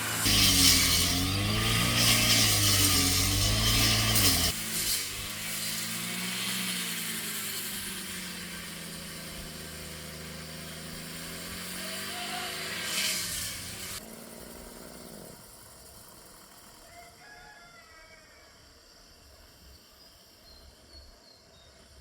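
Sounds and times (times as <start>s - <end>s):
brush cutter engine running: 0.0s - 16.8s.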